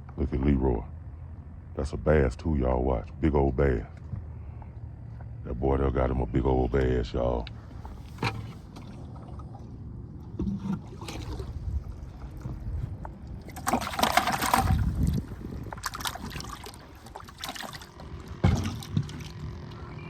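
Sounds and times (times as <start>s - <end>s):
water splashing and trickling: 7.8s - 19.8s.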